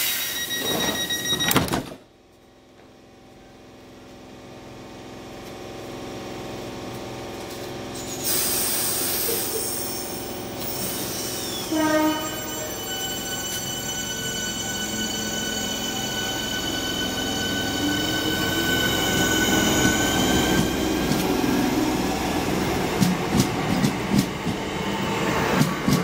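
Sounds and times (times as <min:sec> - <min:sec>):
train motor whine: 0:07.4 - 0:26.0
hiss: 0:08.0 - 0:11.7.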